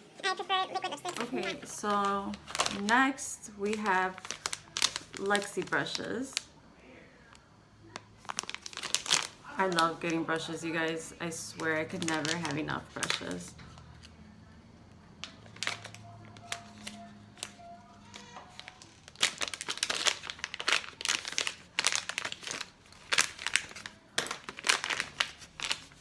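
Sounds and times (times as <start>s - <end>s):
packaging crinkling: 0.4s - 6.5s, 7.9s - 14.1s, 15.2s - 26.0s.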